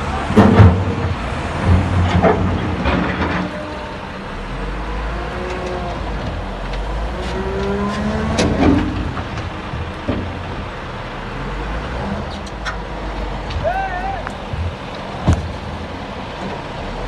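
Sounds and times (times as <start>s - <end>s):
diesel engine revving: 0.0s - 17.0s.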